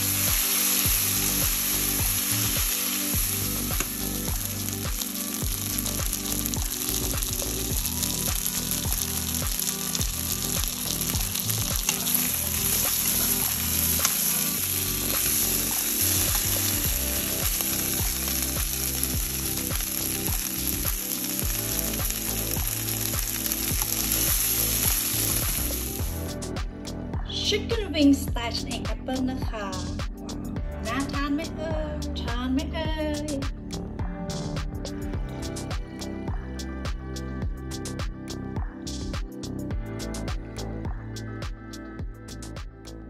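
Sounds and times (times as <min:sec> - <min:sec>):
chicken wings sizzling in oil: 0:00.0 - 0:26.2
oil crackling and popping: 0:00.0 - 0:26.2.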